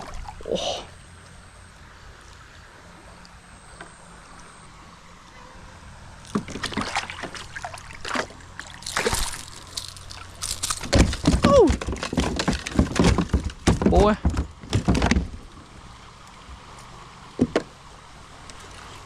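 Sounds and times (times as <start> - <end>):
water sloshing and splashing: 0.0 - 1.0, 5.8 - 19.0
irregular knocks: 10.8 - 15.4.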